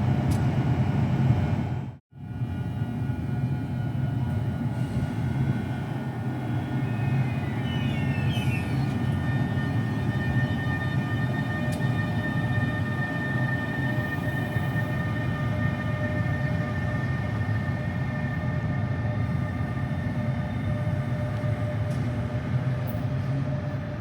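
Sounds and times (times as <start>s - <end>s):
train rumbling: 0.0s - 24.0s
chirping squeal: 6.9s - 9.2s.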